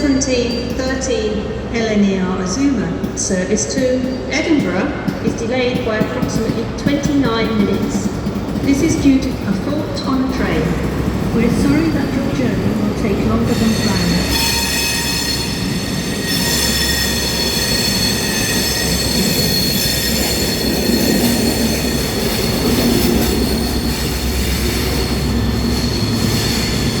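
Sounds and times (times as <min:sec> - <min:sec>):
train rumbling: 0:00.0 - 0:27.0
train wheels squealing: 0:13.3 - 0:27.0.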